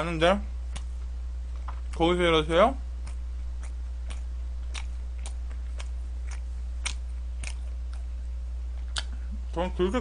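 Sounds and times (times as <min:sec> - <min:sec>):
low electrical hum: 0:00.0 - 0:10.0
person chewing food: 0:00.7 - 0:02.0, 0:02.9 - 0:09.6.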